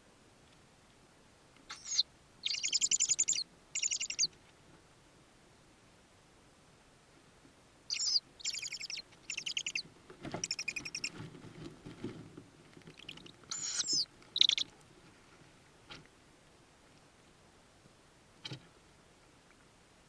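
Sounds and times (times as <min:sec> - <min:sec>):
owl chicks chittering calls: 0:01.7 - 0:04.3, 0:07.9 - 0:11.2, 0:12.9 - 0:14.7.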